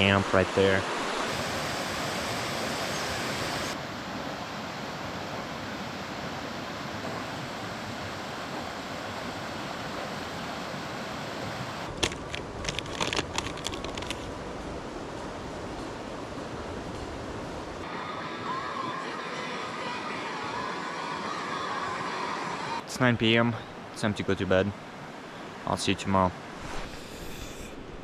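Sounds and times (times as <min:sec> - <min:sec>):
river rushing: 0:00.5 - 0:11.9.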